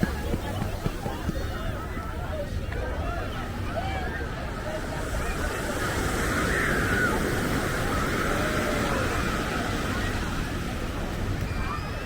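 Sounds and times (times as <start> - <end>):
faint voices: 0.0 - 12.0
ocean surf washing ashore: 4.5 - 11.4.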